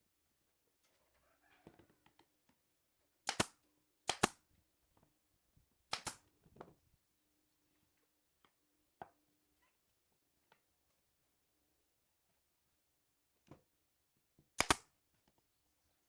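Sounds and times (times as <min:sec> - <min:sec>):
sharp double cracks in wood: 0:03.3 - 0:03.5, 0:04.1 - 0:04.4, 0:05.9 - 0:06.2, 0:14.6 - 0:14.9.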